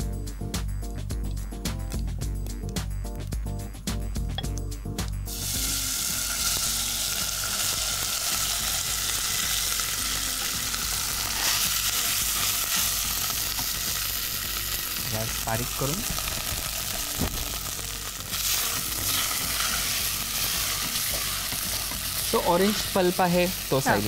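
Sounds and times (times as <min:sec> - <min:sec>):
rice sizzling in hot ghee: 0:05.3 - 0:24.0.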